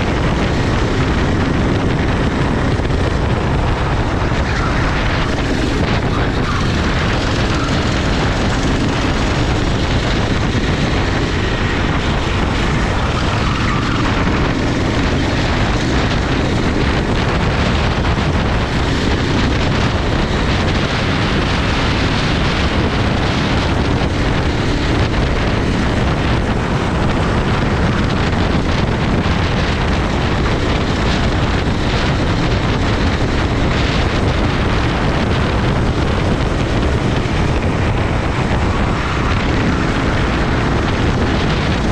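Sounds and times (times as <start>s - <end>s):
kart engine at speed: 0.0s - 41.9s
wind noise on microphone: 0.0s - 41.9s.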